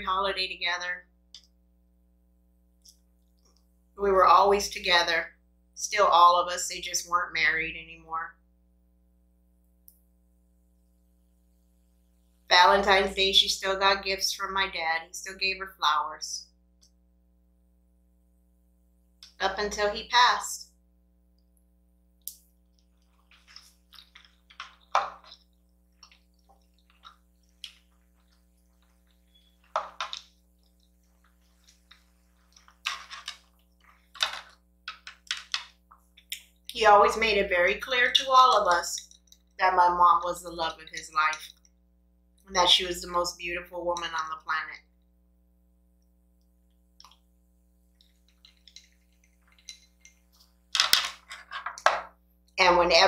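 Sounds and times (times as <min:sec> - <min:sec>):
faint steady hum: 0:00.0 - 0:53.0
person chewing and slurping: 0:22.8 - 0:29.7.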